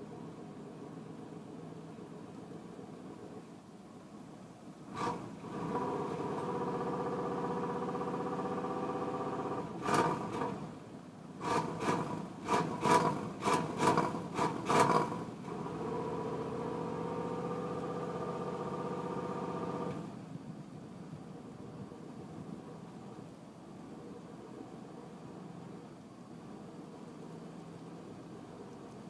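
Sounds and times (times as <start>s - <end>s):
starter motor cranking engine: 11.4s - 15.8s.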